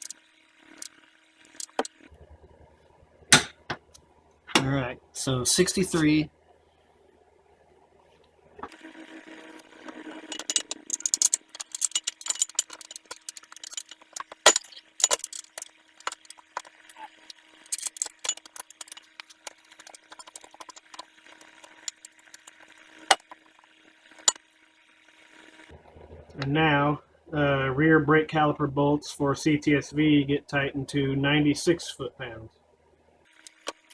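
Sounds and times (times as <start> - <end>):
torque wrench ratcheting: 1.5 - 1.9, 10.3 - 22.5.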